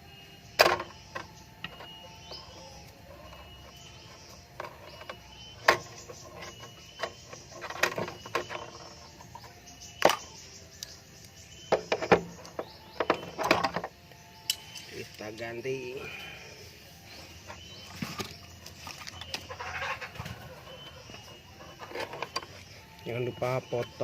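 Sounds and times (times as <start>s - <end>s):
tools and metal parts knocking: 0.6s - 10.2s, 11.7s - 14.8s, 21.1s - 22.6s.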